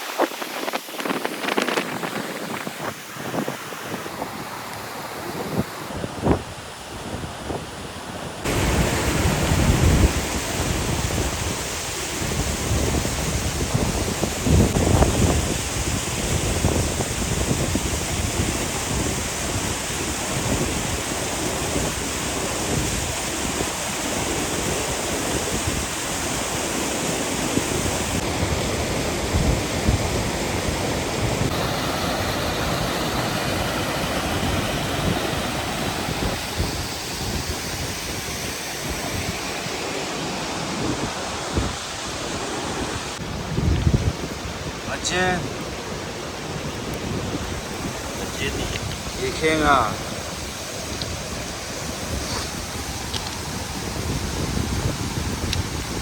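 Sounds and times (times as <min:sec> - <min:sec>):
river water rushing: 0:00.0 - 0:56.0
wind buffeting microphone: 0:00.0 - 0:56.0.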